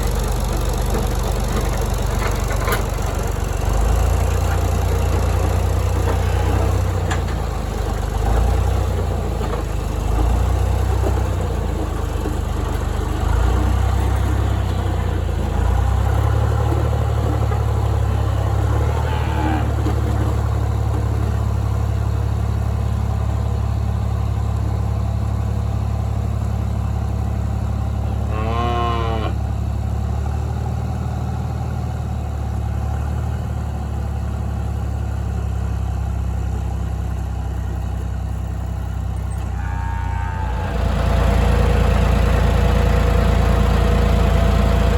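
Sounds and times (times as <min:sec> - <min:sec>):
vehicle engine running: 0:00.0 - 0:44.9
cow mooing: 0:18.7 - 0:20.0, 0:28.1 - 0:29.4, 0:39.6 - 0:40.8.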